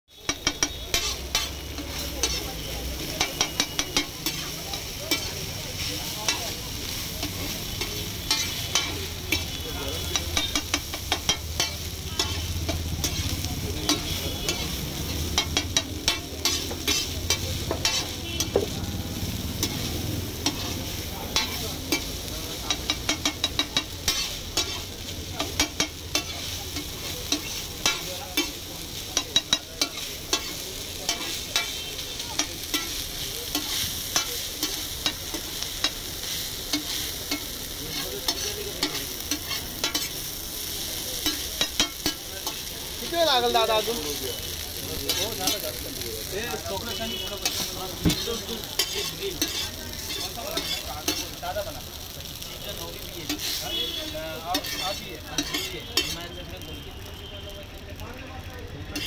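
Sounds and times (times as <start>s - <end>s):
noodles sizzling on a griddle: 0.1s - 59.0s
metal spatula scraping a griddle: 0.2s - 56.6s.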